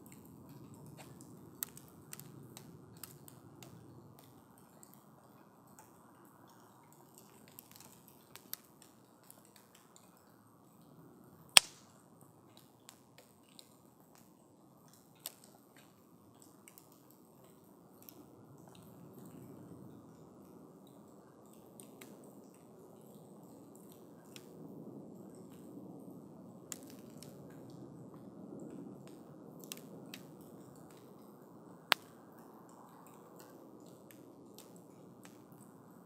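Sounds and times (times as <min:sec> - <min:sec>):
campfire crackling: 0:00.1 - 0:04.3, 0:11.4 - 0:11.9, 0:26.5 - 0:27.4, 0:29.0 - 0:36.0.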